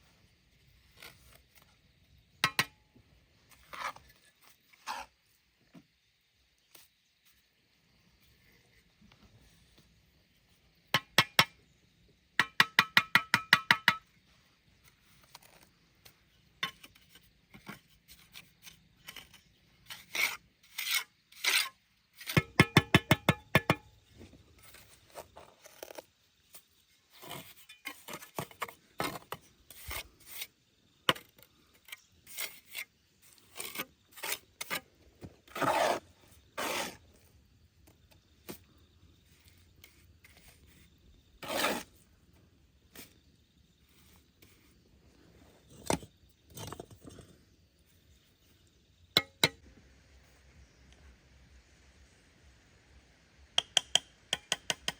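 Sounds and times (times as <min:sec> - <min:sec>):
knocks and scrapes: 0:03.5 - 0:05.8, 0:14.8 - 0:30.5, 0:31.1 - 0:38.7, 0:39.3 - 0:42.0, 0:43.8 - 0:48.6.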